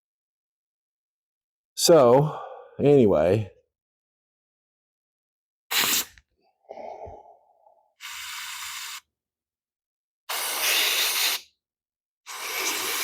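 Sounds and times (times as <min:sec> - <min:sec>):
man breathing close to microphone: 0:02.2 - 0:02.8, 0:06.6 - 0:09.0.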